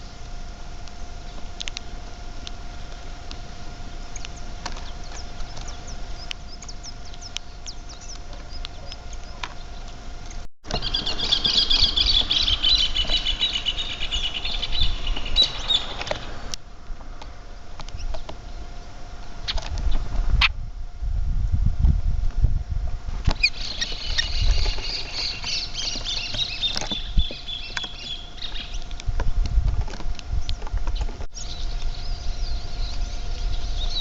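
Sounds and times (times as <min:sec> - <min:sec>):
rapid high twittering: 0:00.0 - 0:16.6, 0:23.4 - 0:29.0
small birds chirping: 0:00.0 - 0:20.5, 0:23.3 - 0:34.0
faint steady whine: 0:00.0 - 0:34.0.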